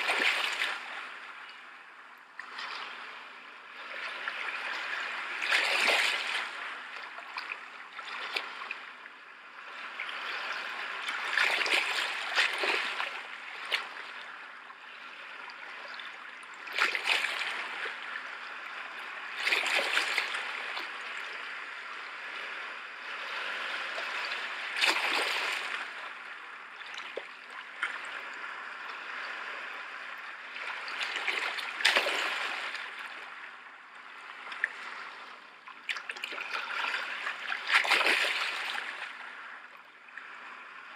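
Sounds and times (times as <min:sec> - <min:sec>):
rushing splashing water: 0:00.0 - 0:01.2, 0:04.0 - 0:08.8, 0:09.9 - 0:14.1, 0:15.9 - 0:18.2, 0:19.3 - 0:21.3, 0:23.8 - 0:28.2, 0:30.2 - 0:33.4, 0:35.8 - 0:39.4.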